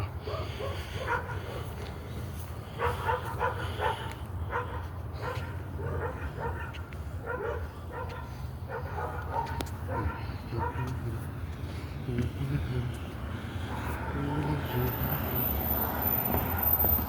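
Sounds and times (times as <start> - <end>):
dogs barking: 0.0 - 2.1, 2.7 - 11.8, 13.4 - 15.2.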